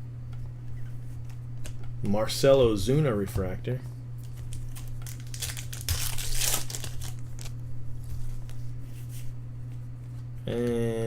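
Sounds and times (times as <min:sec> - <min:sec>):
plastic foil wrapper crinkling: 0:04.2 - 0:07.6.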